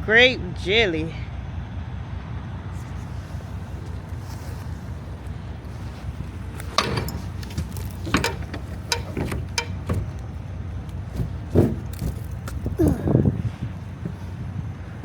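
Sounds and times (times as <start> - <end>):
diesel truck engine idling: 0.0 - 15.0
sharp clicks and knocks: 6.5 - 12.6.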